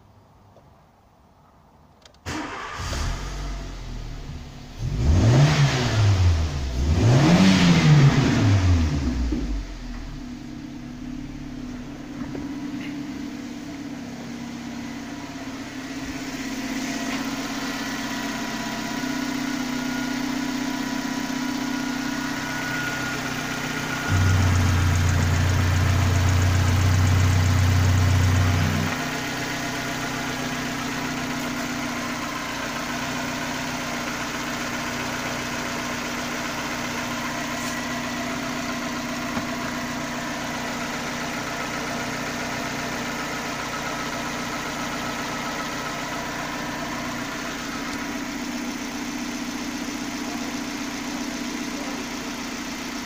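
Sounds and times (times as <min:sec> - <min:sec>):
car engine idling: 0:00.0 - 0:53.0
loud low hum: 0:22.5 - 0:29.1.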